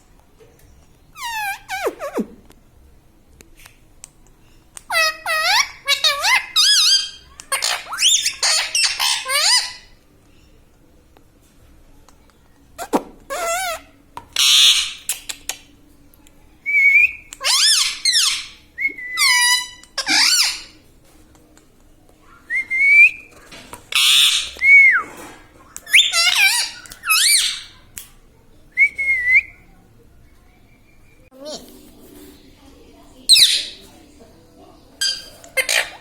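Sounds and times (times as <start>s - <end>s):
parakeet harsh screeches: 4.9s - 9.9s, 13.3s - 15.1s, 23.9s - 24.6s, 35.0s - 36.0s.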